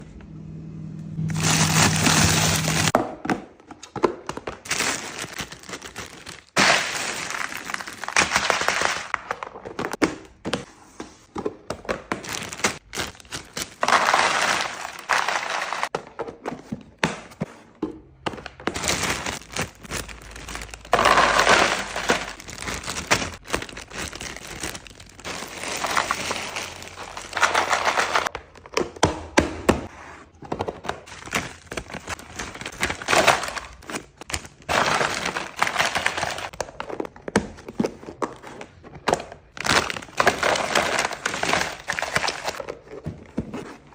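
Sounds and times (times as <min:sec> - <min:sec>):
packaging crinkling: 0:01.3 - 0:03.0, 0:04.6 - 0:09.2, 0:12.2 - 0:15.9, 0:18.6 - 0:28.3, 0:39.6 - 0:42.6
containers clicking and knocking: 0:17.8 - 0:24.5.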